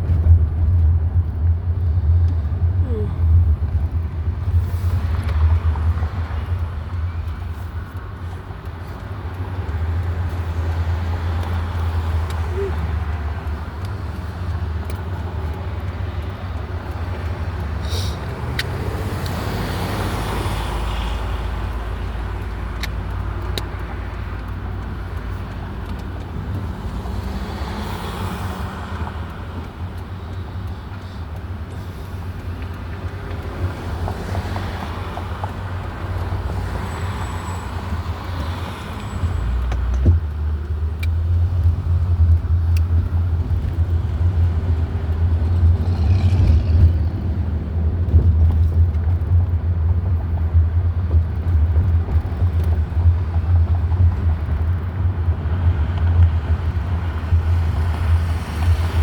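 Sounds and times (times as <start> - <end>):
vehicle road noise rumble: 0.0 - 59.0.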